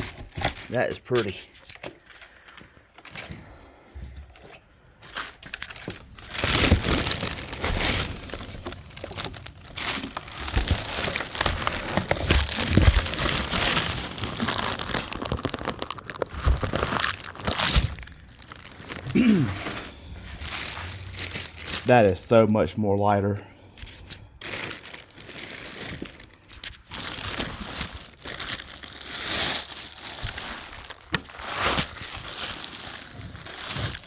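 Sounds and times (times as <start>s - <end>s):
packaging crinkling: 0.0s - 3.4s, 4.3s - 22.3s, 23.8s - 34.0s.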